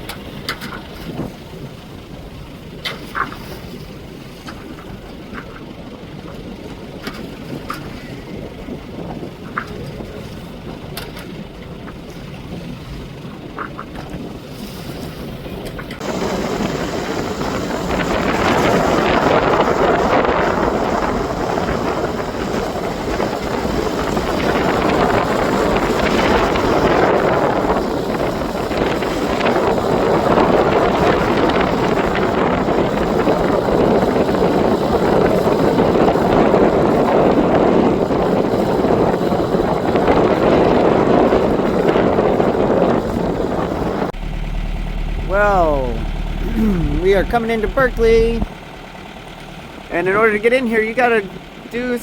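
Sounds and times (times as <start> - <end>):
wind buffeting microphone: 0.0 - 49.2
boat engine low hum: 0.0 - 52.0.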